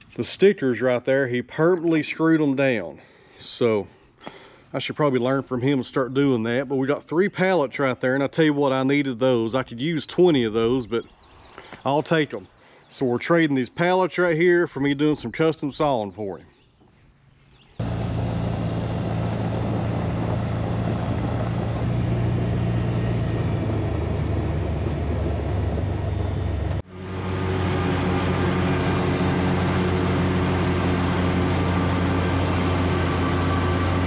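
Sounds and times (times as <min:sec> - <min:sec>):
mower engine running: 0:17.8 - 0:34.0.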